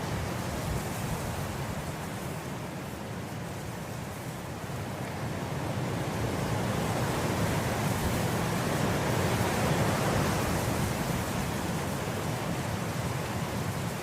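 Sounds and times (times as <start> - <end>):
wind blowing through grass: 0.0 - 14.0.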